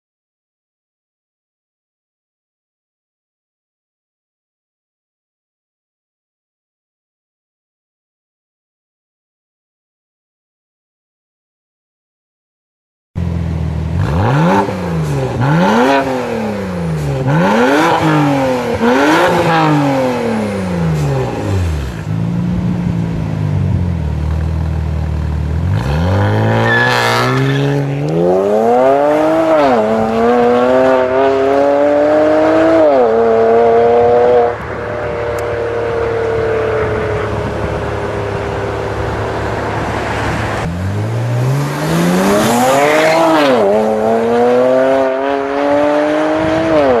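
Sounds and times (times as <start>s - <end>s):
car engine revving through exhaust: 13.6s - 24.1s, 25.4s - 47.0s.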